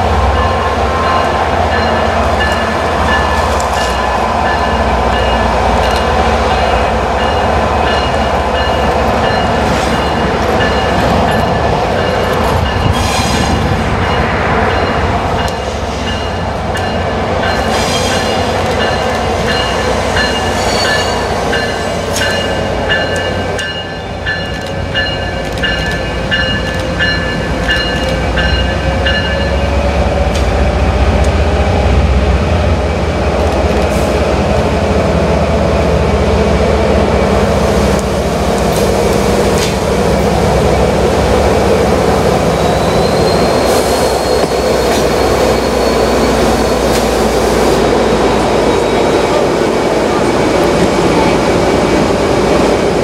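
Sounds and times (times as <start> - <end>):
train wheel squeal: 14.8 - 22.6, 42.5 - 47.2.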